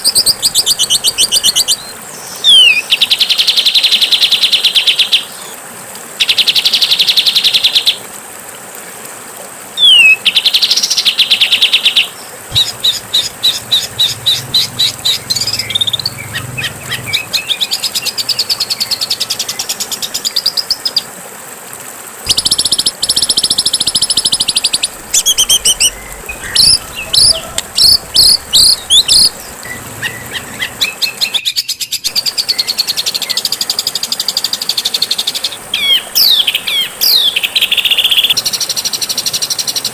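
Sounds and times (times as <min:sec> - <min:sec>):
songbird buzzy trills: 0:00.0 - 0:05.3, 0:09.8 - 0:21.1, 0:22.3 - 0:39.0
sharp bird chirps: 0:12.5 - 0:18.1, 0:22.3 - 0:33.4
thin high bird trill: 0:22.3 - 0:31.4.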